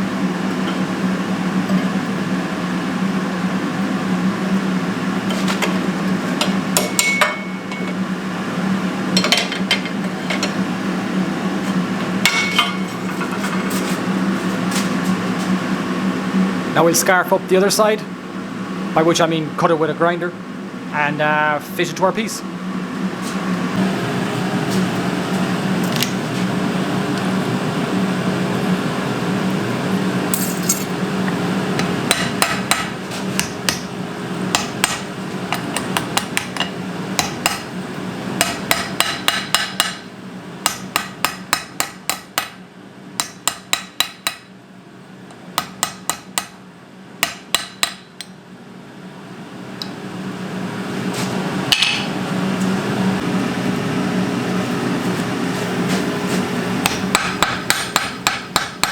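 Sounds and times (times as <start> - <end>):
forge blower humming: 0.0 - 58.9
hammer striking steel on anvil: 6.7 - 8.0, 12.3 - 13.0, 31.8 - 33.9, 34.5 - 37.7, 38.4 - 42.6, 43.2 - 44.5, 45.6 - 46.6, 47.2 - 48.4, 51.7 - 52.2, 56.8 - 58.9.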